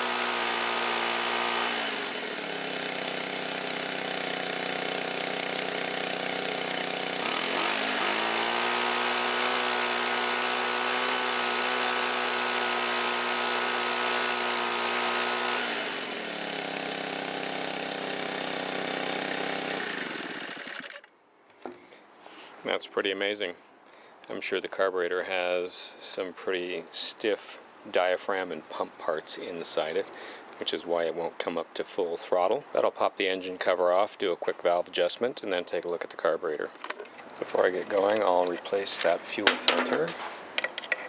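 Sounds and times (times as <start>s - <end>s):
leaf blower engine running: 0.0s - 21.1s.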